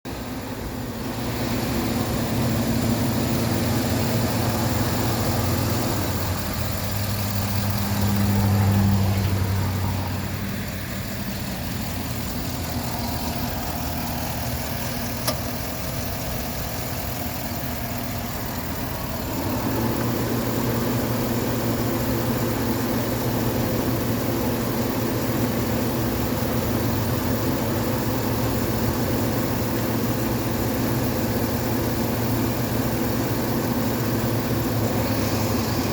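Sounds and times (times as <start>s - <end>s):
truck engine idling: 0.0s - 35.9s
sharp click: 15.2s - 15.5s.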